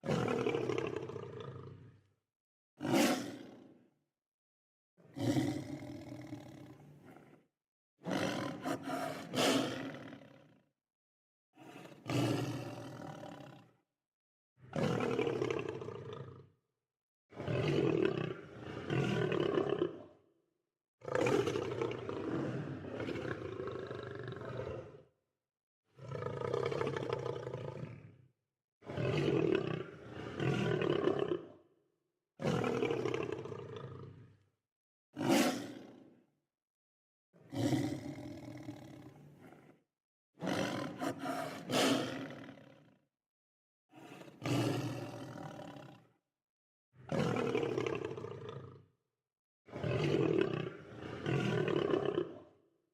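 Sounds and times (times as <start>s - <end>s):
lion roaring and growling: 40.4s - 42.6s.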